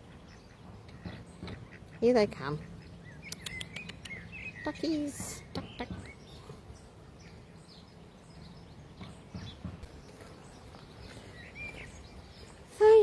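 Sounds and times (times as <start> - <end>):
short bird chirps: 3.2 - 4.7.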